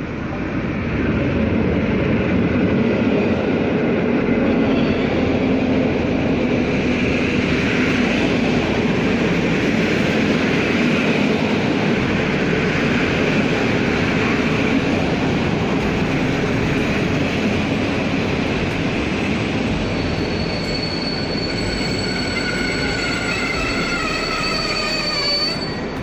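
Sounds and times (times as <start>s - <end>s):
train wheels rumbling on rail: 0.0s - 26.0s
wheels squealing: 15.8s - 26.0s.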